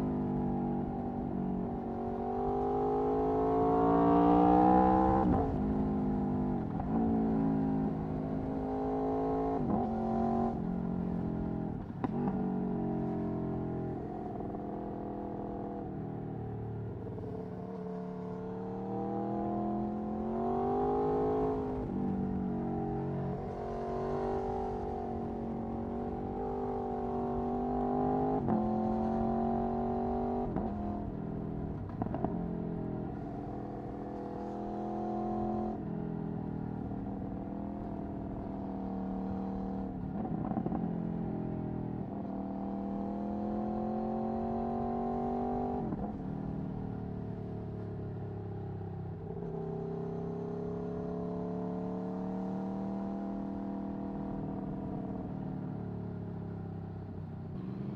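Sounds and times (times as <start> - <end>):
motorcycle engine revving through gears: 36.8 - 46.6, 57.6 - 57.9.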